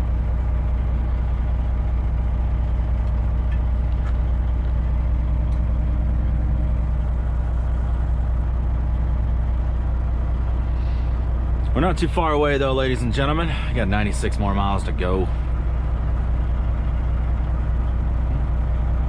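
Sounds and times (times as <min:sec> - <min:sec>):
diesel truck engine droning: 0:00.0 - 0:19.0.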